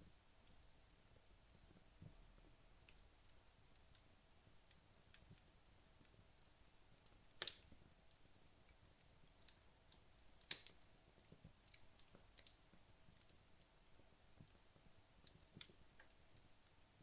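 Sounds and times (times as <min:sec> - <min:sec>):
logs crackling quietly: 0:00.0 - 0:17.0
sharp fire pops: 0:07.4 - 0:07.7.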